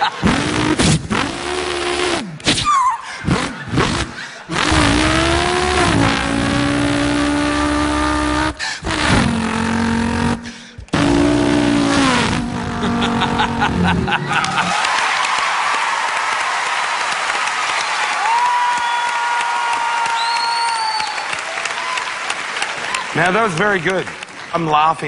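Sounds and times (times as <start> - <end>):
man imitating car engine: 0.0 - 14.6.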